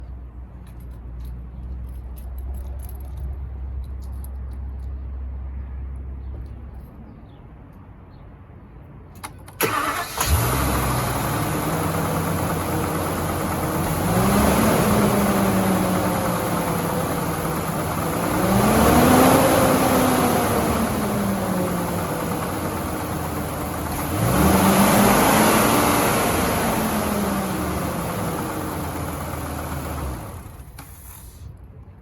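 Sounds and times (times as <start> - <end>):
truck engine starting and idling: 9.2 - 31.6
engine revving: 9.6 - 30.8.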